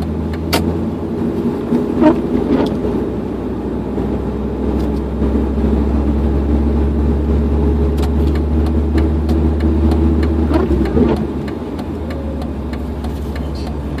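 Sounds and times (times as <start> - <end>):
engine and road drone: 0.0 - 14.0
sharp irregular ticks: 8.0 - 14.0.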